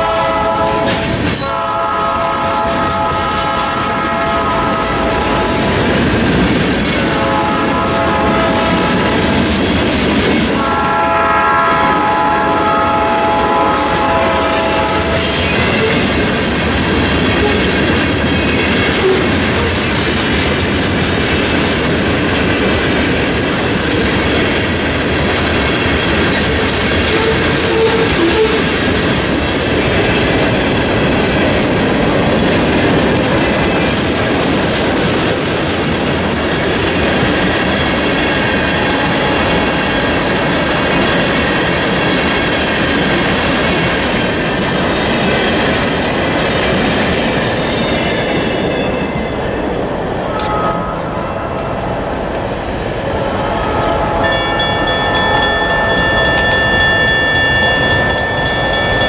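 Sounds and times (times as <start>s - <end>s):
freight train wheels rumbling on rail: 0.0s - 59.0s
steady horn-like tone: 10.6s - 15.3s, 50.2s - 51.9s, 53.1s - 56.2s
high squealing tones: 53.3s - 59.0s.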